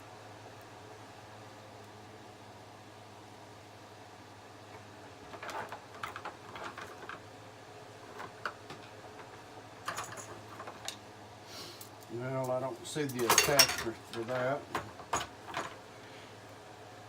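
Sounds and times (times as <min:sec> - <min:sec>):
small tools clicking and rattling: 0:05.3 - 0:07.2, 0:08.1 - 0:11.0, 0:11.8 - 0:15.8.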